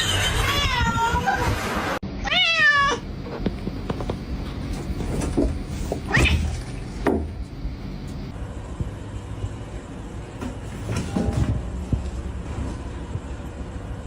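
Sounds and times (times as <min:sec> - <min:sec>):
cat meowing: 0:00.0 - 0:01.3, 0:02.2 - 0:03.0.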